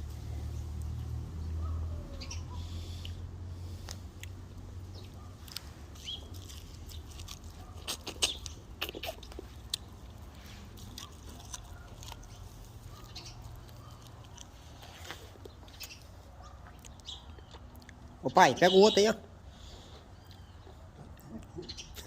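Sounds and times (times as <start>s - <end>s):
person chewing corn: 2.6s - 18.2s.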